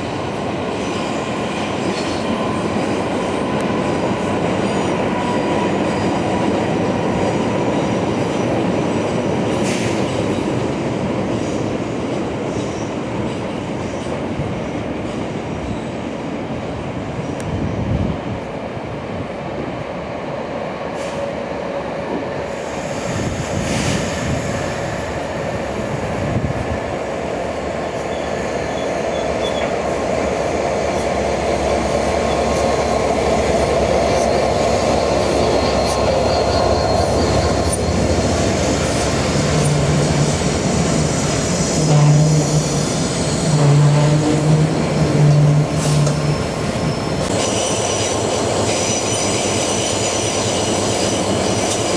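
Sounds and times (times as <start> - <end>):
train running on rails: 0.0 - 51.9.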